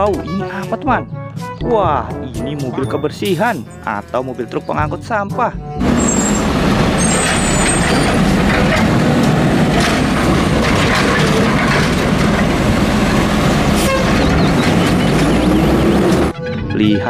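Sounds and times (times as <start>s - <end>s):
garbage truck diesel engine idling: 5.8s - 16.3s
hydraulic arm lifting cart: 5.8s - 16.4s
trash cart knocking and clattering: 5.8s - 16.4s.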